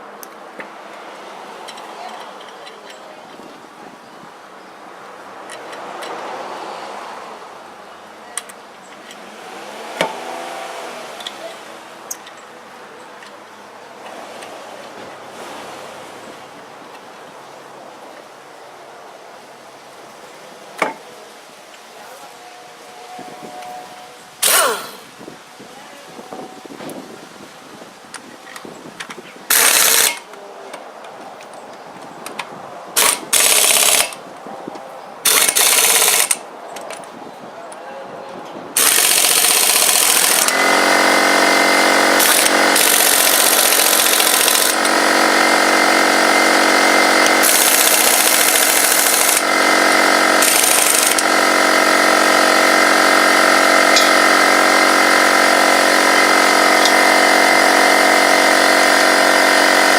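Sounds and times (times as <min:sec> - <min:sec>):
power tool bursts: 0:24.4 - 0:25.1, 0:29.5 - 0:30.3, 0:33.0 - 0:34.2, 0:35.2 - 0:36.4, 0:38.8 - 0:59.9
machine humming: 0:38.8 - 0:59.9.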